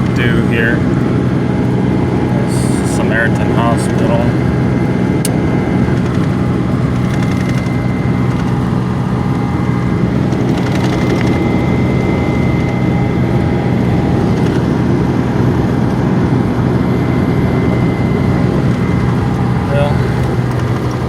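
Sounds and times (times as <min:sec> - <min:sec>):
car road and engine noise: 0:00.0 - 0:21.0
low hum: 0:00.0 - 0:21.0.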